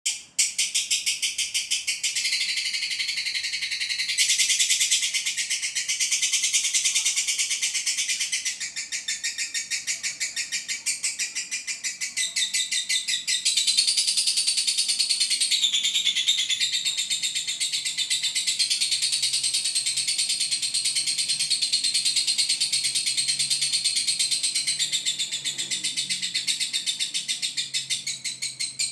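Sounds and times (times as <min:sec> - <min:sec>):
bird chattering trill: 0:00.1 - 0:28.9.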